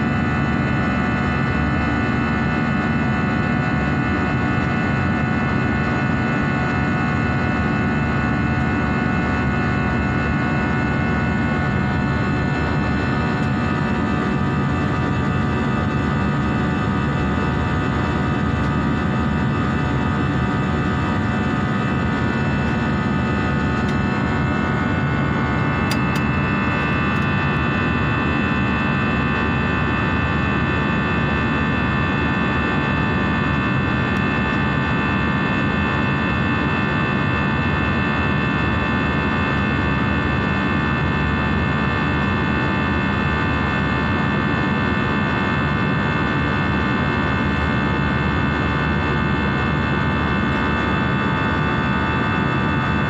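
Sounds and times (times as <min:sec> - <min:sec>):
jet engines whining rush: 0:00.4 - 0:37.2
high whine: 0:02.9 - 0:38.2.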